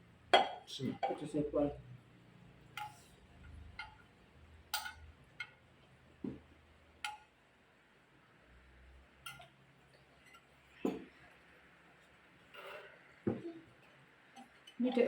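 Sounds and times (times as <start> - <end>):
spoons clinking on plates: 2.7 - 4.1, 4.7 - 5.6, 9.2 - 9.6.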